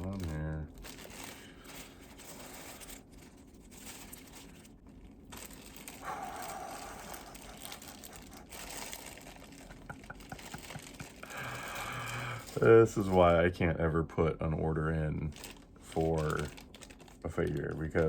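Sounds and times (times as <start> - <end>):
small clicks and crackles: 0.0 - 13.3, 15.2 - 18.0
packing material crinkling: 0.0 - 13.5, 14.9 - 18.0.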